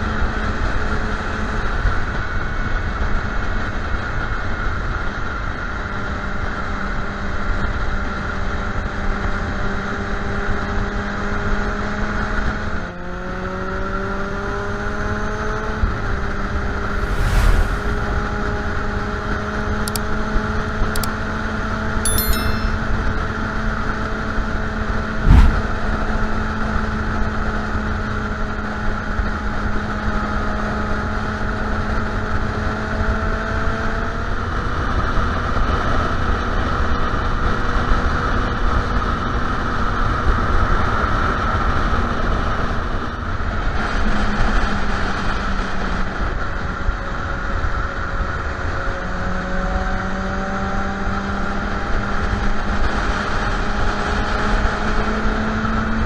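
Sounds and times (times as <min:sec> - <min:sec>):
rushing noise: 0:16.8 - 0:18.8, 0:25.2 - 0:25.8
sharp knock: 0:25.2 - 0:25.7.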